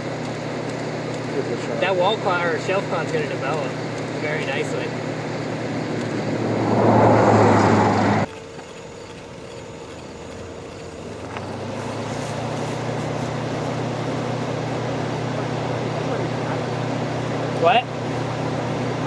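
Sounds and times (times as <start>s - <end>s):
low hum of vehicle engine: 0.0s - 19.0s
strong wind on microphone: 6.2s - 8.3s.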